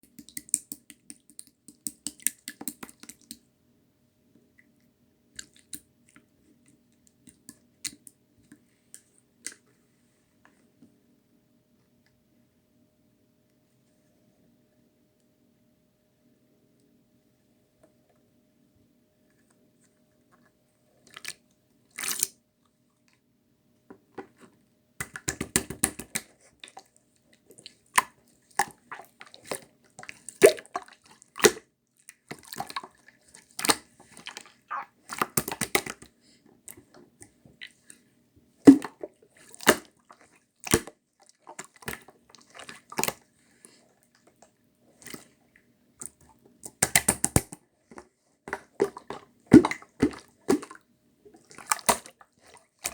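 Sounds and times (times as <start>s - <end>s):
slime squished by hand: 33.6s - 36.0s, 48.5s - 50.8s.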